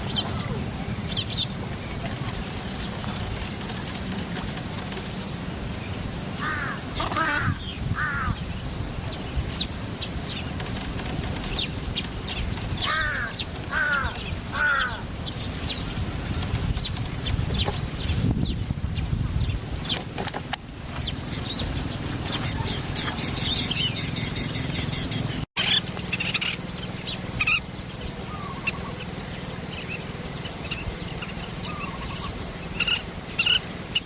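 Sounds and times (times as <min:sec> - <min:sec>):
birds chirping: 0:00.0 - 0:34.0
bird giving harsh calls: 0:06.4 - 0:08.5, 0:12.8 - 0:15.1.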